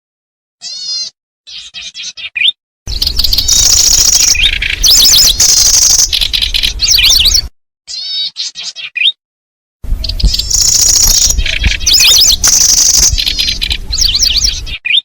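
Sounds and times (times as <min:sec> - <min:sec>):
bird lure call chirps and trills: 0:00.7 - 0:09.2, 0:10.0 - 0:15.0
low rumble: 0:02.9 - 0:07.5, 0:09.8 - 0:14.8.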